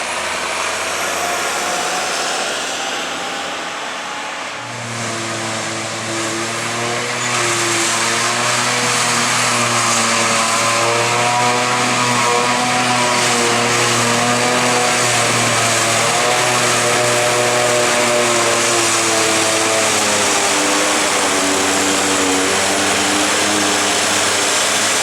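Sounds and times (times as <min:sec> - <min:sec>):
deeper engine note: 0:00.0 - 0:09.7
diesel farm machinery engines: 0:00.0 - 0:25.0.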